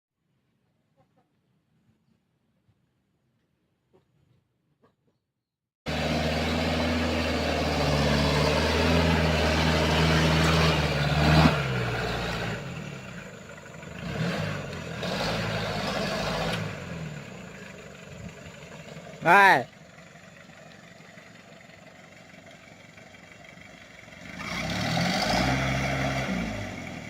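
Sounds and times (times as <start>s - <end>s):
engine revving hard under load: 5.9s - 13.2s, 13.8s - 17.5s, 24.2s - 27.0s.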